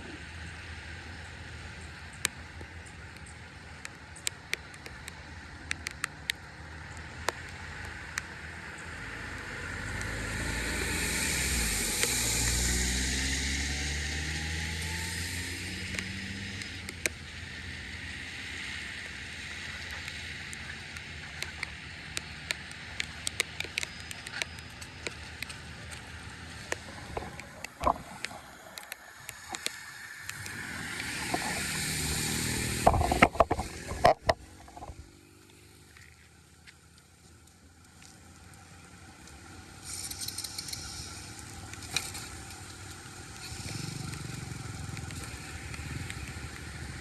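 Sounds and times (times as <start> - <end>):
sharp clicks: 3.1 - 8.3, 19.8 - 32.2, 39.9 - 46.8.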